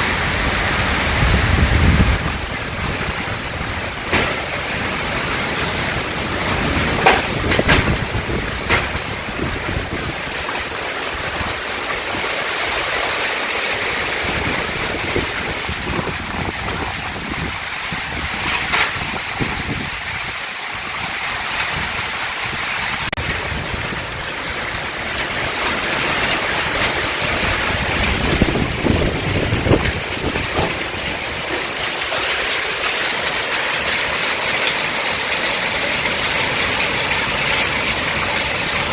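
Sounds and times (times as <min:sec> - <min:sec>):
gusts of wind: 0:00.0 - 0:12.3, 0:13.8 - 0:32.0
heavy rain pouring: 0:00.0 - 0:38.9
sharp knocks: 0:04.1 - 0:04.6, 0:06.9 - 0:09.2.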